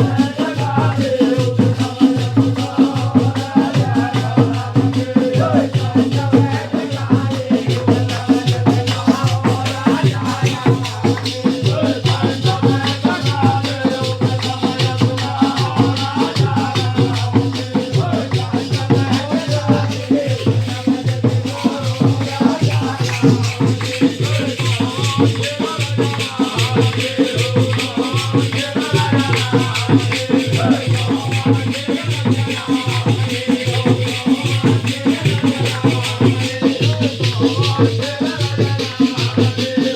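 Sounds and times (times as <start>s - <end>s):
jingling rattling percussion: 0.0s - 39.9s.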